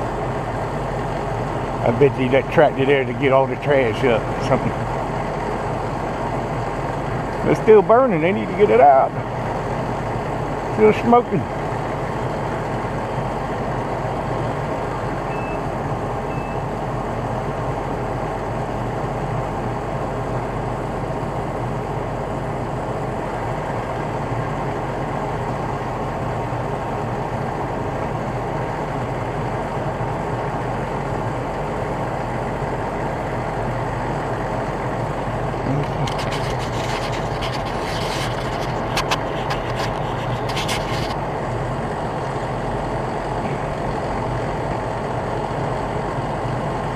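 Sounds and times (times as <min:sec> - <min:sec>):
truck engine idling: 0:00.0 - 0:46.9
short high beeps: 0:15.3 - 0:15.6, 0:16.3 - 0:16.7
sharp clicks and crackles: 0:35.8 - 0:41.2.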